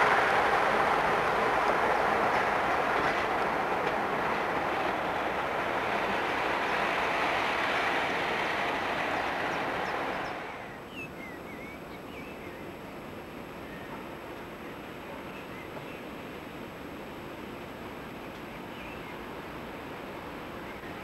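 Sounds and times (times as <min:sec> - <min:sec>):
train wheels rumbling on rail: 0:00.0 - 0:10.9.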